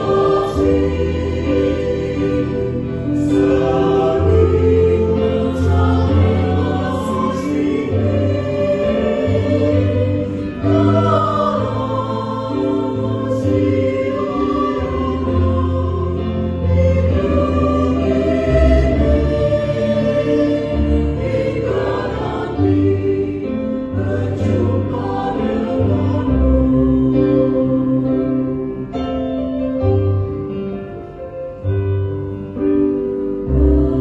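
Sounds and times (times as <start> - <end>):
choir singing in parts: 0.0 - 29.0, 33.2 - 34.0.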